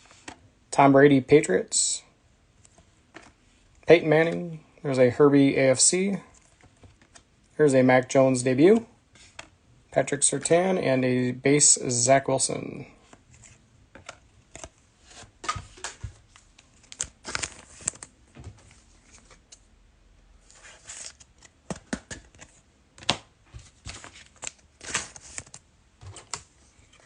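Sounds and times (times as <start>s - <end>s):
cards shuffling and tapping: 2.6s - 3.4s, 6.3s - 7.3s, 13.0s - 19.6s, 20.5s - 27.0s
wrapper crinkling and tearing: 16.7s - 18.1s.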